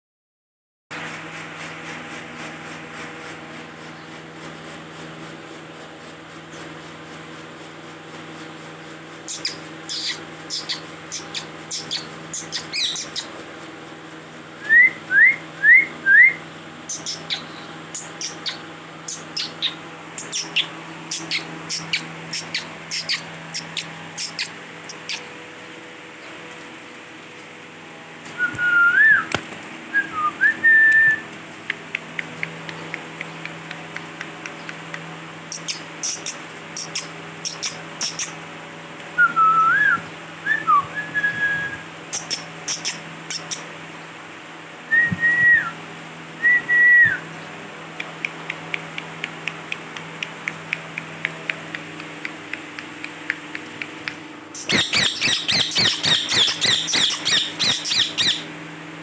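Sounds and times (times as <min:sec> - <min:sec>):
parrot screeching chatter: 0:09.3 - 0:13.3, 0:18.2 - 0:25.3, 0:54.6 - 0:58.5
parrot whistling: 0:09.3 - 0:13.3, 0:54.6 - 0:58.5
parrot clicks: 0:31.7 - 0:35.8, 0:48.0 - 0:54.7.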